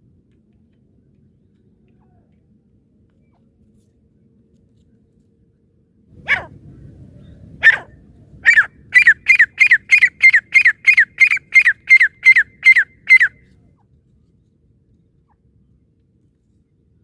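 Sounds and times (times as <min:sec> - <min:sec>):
francolin calling: 0:07.7 - 0:13.4.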